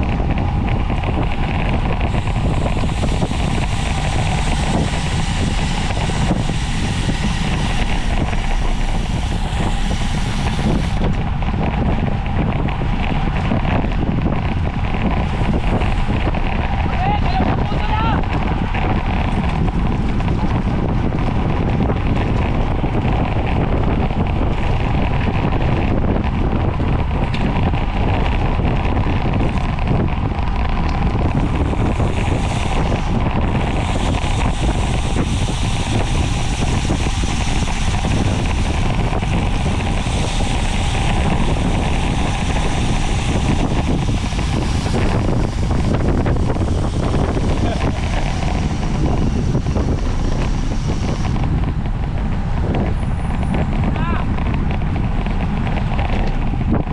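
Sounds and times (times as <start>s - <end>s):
wind buffeting on microphone: 0.0s - 56.9s
bright hiss: 1.4s - 11.4s, 31.0s - 51.6s.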